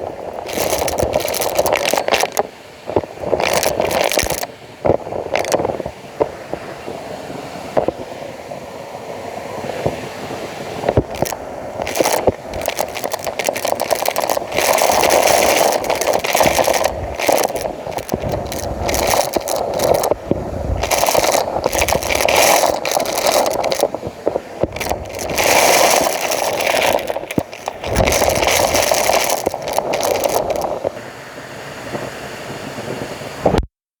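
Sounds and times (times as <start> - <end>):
nozzle scraping along floor: 0.4 - 2.4, 10.9 - 20.2, 20.8 - 24.0, 24.6 - 30.9.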